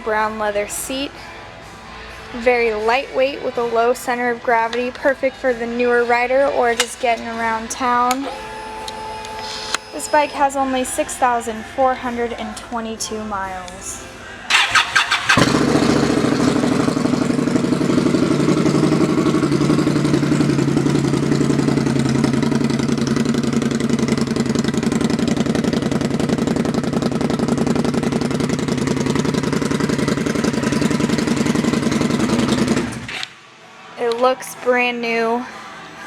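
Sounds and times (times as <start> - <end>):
motorcycle engine idling: 14.5 - 33.1
starter motor cranking: 14.5 - 33.3.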